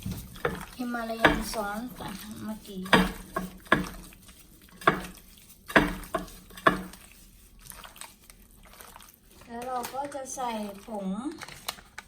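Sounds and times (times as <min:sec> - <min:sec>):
soft handling noise: 0:00.0 - 0:12.0
kitchenware knocking against dish: 0:00.1 - 0:01.7, 0:02.8 - 0:04.0, 0:05.7 - 0:06.9.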